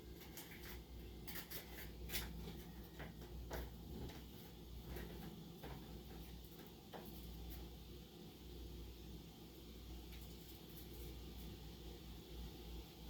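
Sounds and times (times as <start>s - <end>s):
faint clicks and taps: 0.2s - 7.7s.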